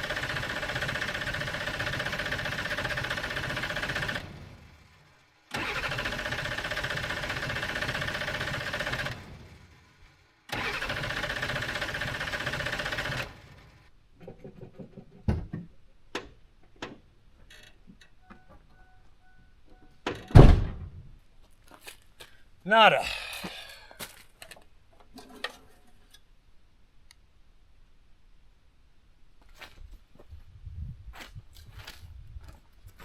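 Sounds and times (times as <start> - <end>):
diesel engine cranking: 0.0 - 13.9
loud thump: 20.4 - 21.0.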